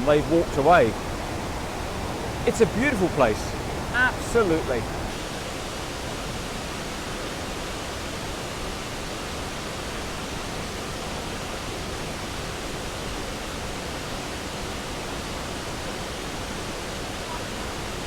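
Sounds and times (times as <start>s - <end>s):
waterfall rushing: 0.0s - 5.9s.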